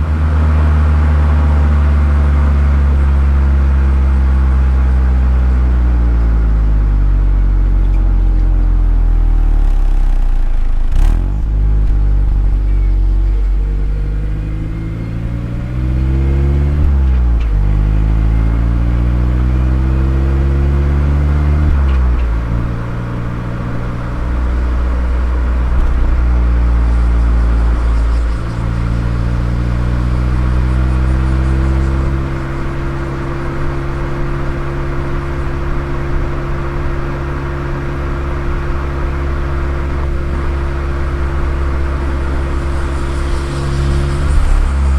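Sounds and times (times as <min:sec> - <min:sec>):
car engine revving through upshifts: 0:09.6 - 0:12.6, 0:14.0 - 0:44.9.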